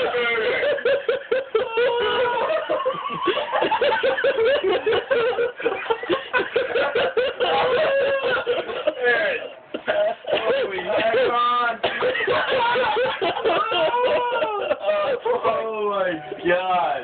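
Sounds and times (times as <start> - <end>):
people laughing and snickering: 0.0 - 16.4.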